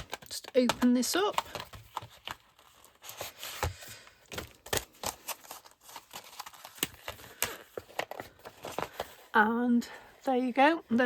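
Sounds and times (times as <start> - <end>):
packaging crinkling and rustling: 0.0 - 9.3.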